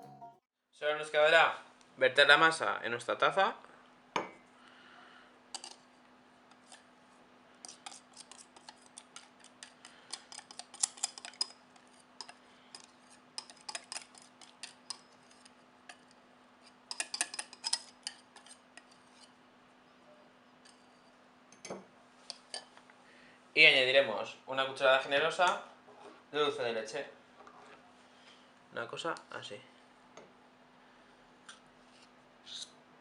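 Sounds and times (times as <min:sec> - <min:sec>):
faint steady hum: 0:00.8 - 0:33.0
spoon scraping and tapping bowl: 0:07.7 - 0:19.3.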